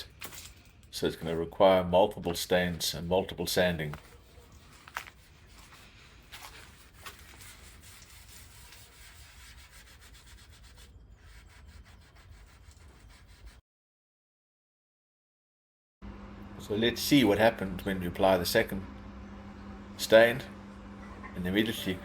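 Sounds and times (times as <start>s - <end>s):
hand rubbing on wood: 2.6s - 13.6s.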